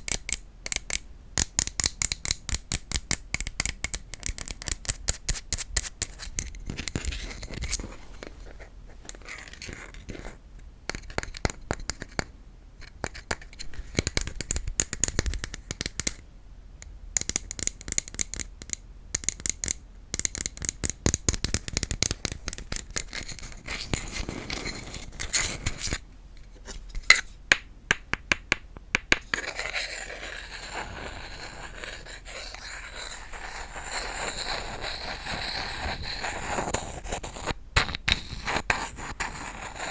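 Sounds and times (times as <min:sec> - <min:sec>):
scratching on wood: 0:22.0 - 0:26.0, 0:29.2 - 0:39.9
tapping on wood: 0:27.5 - 0:29.4.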